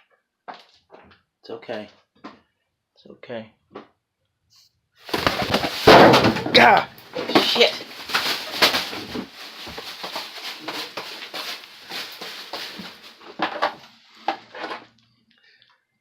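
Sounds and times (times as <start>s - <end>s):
plastic bag rustling: 5.0s - 14.2s.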